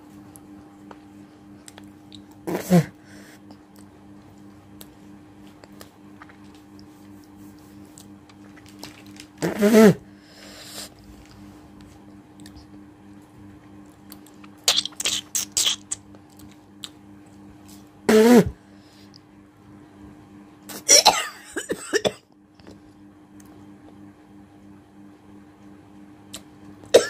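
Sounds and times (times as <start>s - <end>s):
woman hawking phlegm: 2.4s - 3.0s, 9.4s - 10.1s, 14.5s - 16.1s, 18.1s - 18.6s
woman spitting: 2.4s - 3.0s, 9.4s - 10.0s, 14.5s - 16.1s, 18.1s - 18.6s.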